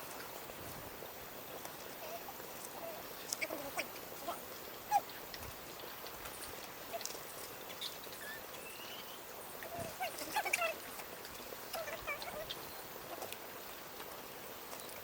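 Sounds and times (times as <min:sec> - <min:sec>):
low background hiss: 0:00.0 - 0:15.0
faint animal calls and squeaks: 0:01.9 - 0:13.4.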